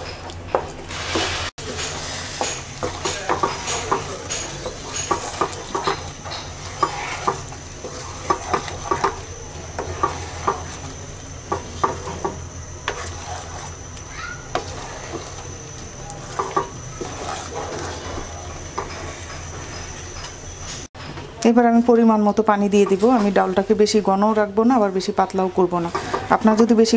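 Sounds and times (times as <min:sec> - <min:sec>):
light sizzle: 0:00.0 - 0:20.9
spatula scraping a pot: 0:00.6 - 0:20.9, 0:22.8 - 0:23.8, 0:25.8 - 0:26.6.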